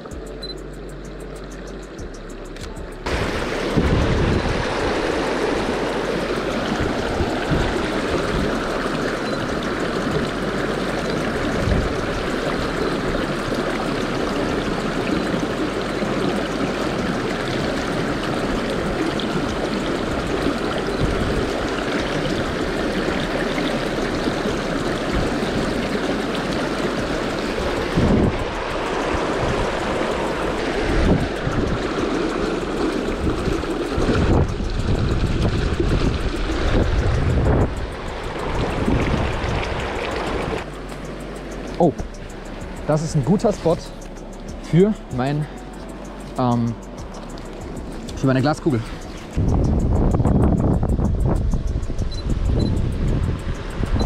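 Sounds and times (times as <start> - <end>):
river water rushing: 0.9 - 54.0.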